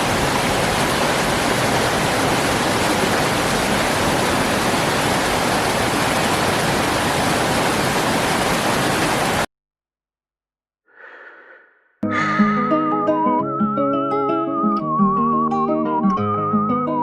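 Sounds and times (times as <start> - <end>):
waterfall roaring: 0.0 - 9.5.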